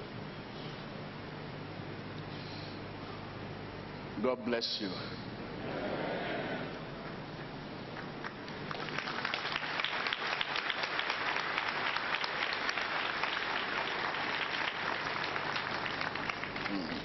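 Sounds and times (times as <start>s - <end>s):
crowd applauding: 6.6s - 17.0s.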